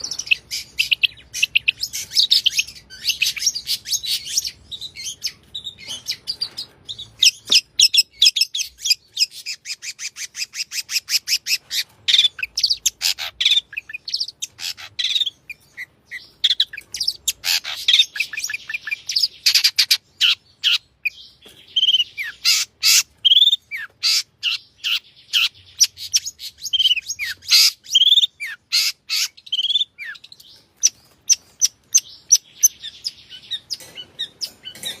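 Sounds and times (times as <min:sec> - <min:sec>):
bird singing trills and whistles: 0:00.0 - 0:35.0.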